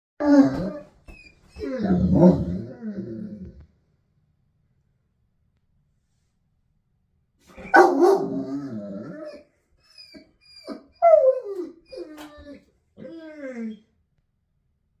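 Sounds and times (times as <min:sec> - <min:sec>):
dog barking: 0:07.6 - 0:08.6.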